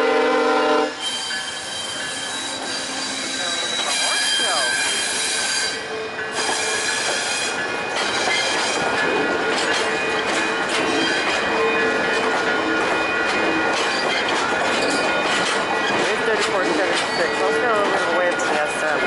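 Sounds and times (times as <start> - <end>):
passenger train rolling past: 0.0 - 19.0
high wheel squeal: 0.9 - 18.6
wheels clicking over rail joints: 6.3 - 19.0.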